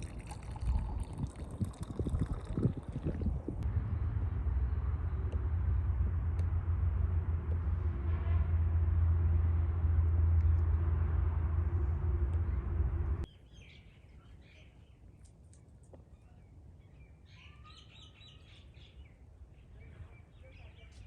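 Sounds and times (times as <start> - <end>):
stream flowing with low rumble: 0.0 - 13.3.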